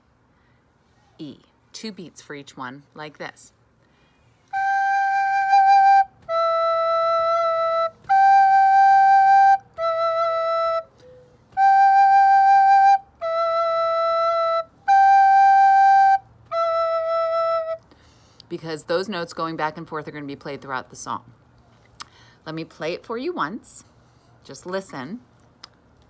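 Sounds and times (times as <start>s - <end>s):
recorder playing held notes: 4.5s - 17.8s
breath between notes: 17.9s - 18.5s, 22.1s - 22.4s.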